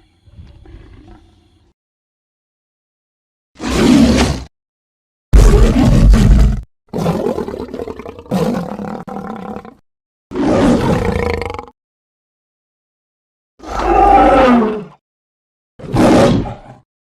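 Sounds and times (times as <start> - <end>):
tiger roaring: 5.4 - 11.7, 13.6 - 15.0, 15.8 - 16.8.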